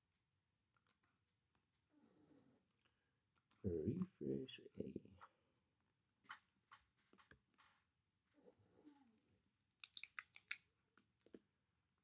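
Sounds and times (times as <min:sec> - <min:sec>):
computer keyboard clicking: 0:09.8 - 0:10.6.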